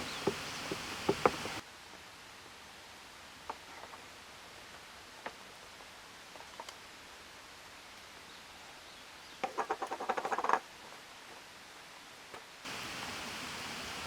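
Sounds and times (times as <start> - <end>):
bird chattering call: 0.0 - 1.6
faint steady hiss: 0.0 - 14.0.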